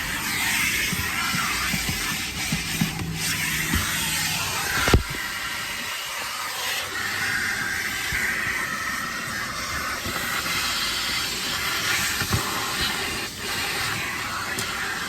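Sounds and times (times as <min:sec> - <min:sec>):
vacuum hose suction hiss: 0:00.0 - 0:15.0.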